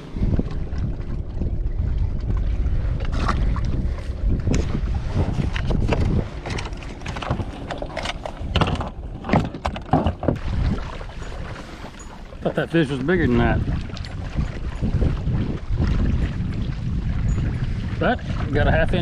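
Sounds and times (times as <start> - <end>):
wind rumbling on microphone: 0.0 - 19.0
knocks and clatters of gear: 5.6 - 10.4.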